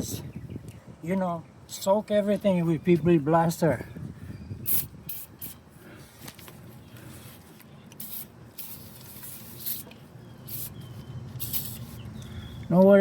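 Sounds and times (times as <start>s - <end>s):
aerosol spray hissing: 10.5s - 10.8s, 11.4s - 12.0s.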